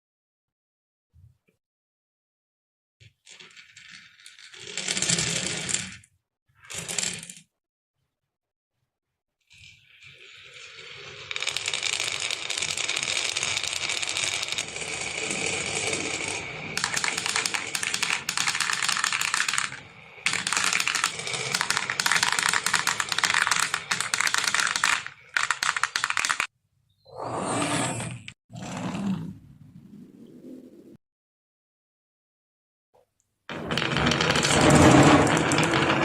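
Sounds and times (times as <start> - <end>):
marbles rattling down a marble run: 3.3 - 6.0, 9.6 - 26.5, 33.5 - 36.0.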